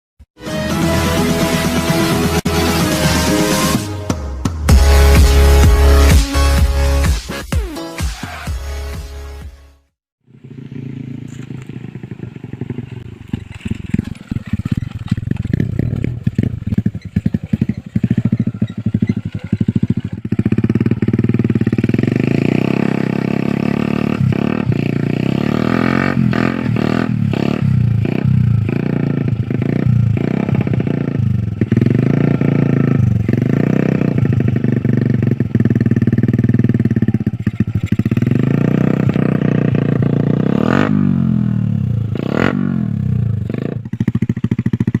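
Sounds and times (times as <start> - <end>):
motorcycle engine revving: 10.2 - 45.0.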